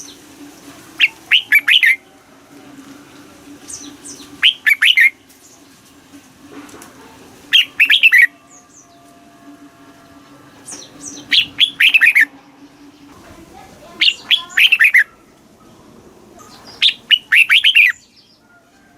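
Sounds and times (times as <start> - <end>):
bird singing whistled notes: 1.0 - 2.0, 3.6 - 5.6, 7.5 - 9.2, 10.0 - 13.1, 14.0 - 15.2, 16.4 - 18.4.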